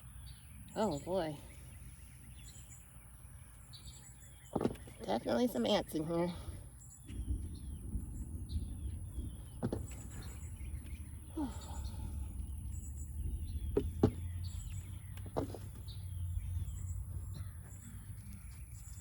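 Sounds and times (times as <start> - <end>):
birds chirping: 0.0 - 19.0
sharp knocks: 13.2 - 14.5.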